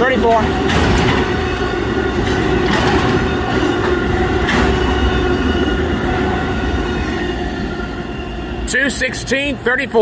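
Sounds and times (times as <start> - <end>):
wheels clicking over rail joints: 0.0 - 5.2
train wheels rumbling on rail: 0.0 - 10.0.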